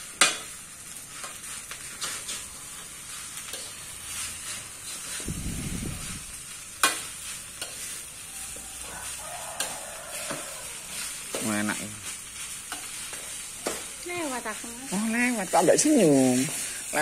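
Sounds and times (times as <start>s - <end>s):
rice sizzling in a metal pan: 0.0s - 17.0s
metal ladle scraping a pan: 1.1s - 5.3s, 6.0s - 14.4s.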